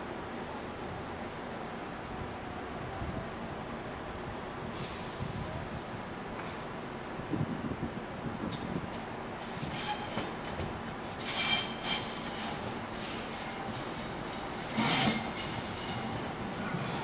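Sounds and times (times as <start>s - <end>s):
electric train rumbling over points: 3.6s - 17.0s
wheel squeals: 9.6s - 10.6s, 11.2s - 17.0s.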